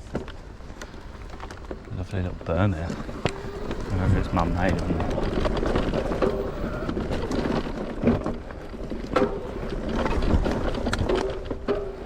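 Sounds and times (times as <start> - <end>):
rapid rattling clicks from bike: 0.0 - 12.0.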